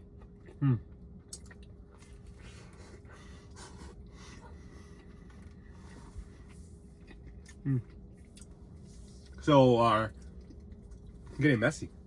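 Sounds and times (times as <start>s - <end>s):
chewing pizza: 0.0s - 12.0s.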